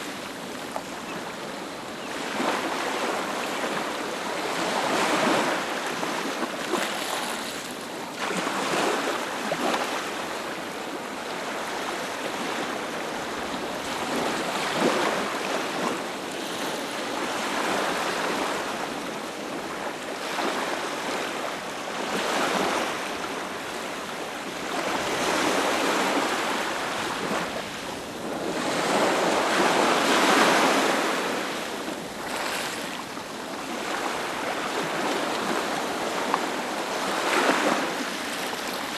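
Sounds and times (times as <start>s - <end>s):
ocean waves breaking: 21.9s - 38.9s.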